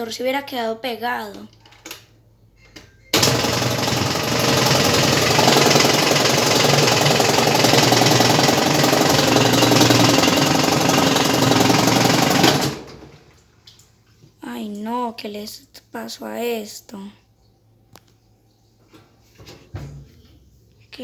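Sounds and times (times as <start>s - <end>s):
washing machine rattling buzz: 3.2s - 13.4s.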